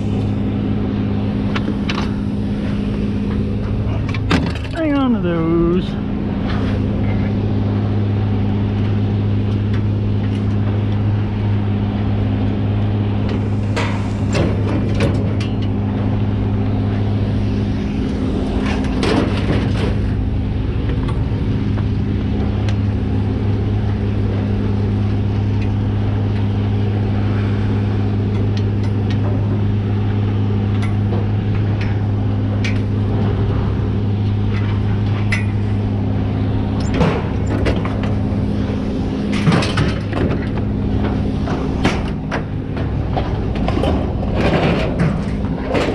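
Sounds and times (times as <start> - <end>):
truck engine and road drone: 0.0 - 45.9
knocks and rattles: 36.8 - 45.9.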